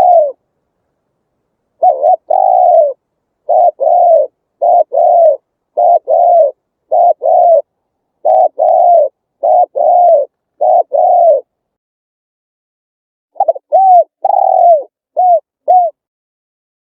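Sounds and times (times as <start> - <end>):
dove cooing: 0.0 - 0.4, 1.8 - 11.5, 13.4 - 16.0.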